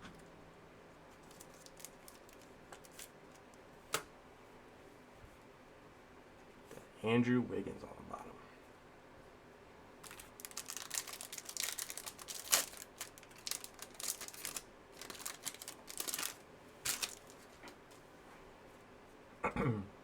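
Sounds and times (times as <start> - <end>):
trading cards clicking and rustling: 10.0 - 17.8.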